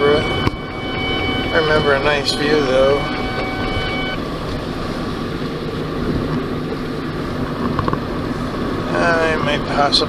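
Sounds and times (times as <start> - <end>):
car interior road rumble: 0.0 - 10.0.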